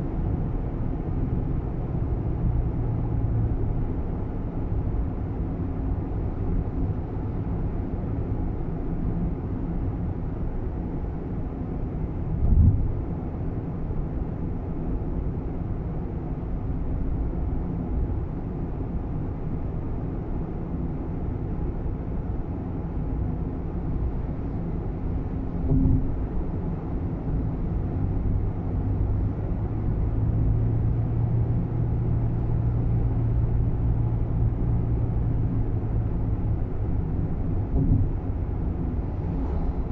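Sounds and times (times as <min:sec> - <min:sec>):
car cabin engine and road rumble: 0:00.0 - 0:39.9
short thumps: 0:25.7 - 0:26.1, 0:37.7 - 0:38.2.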